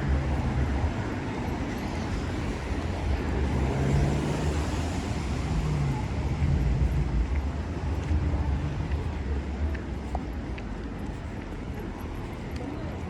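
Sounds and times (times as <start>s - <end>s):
car engines rumbling: 0.0s - 13.0s
tyres hissing on wet road: 3.3s - 5.9s.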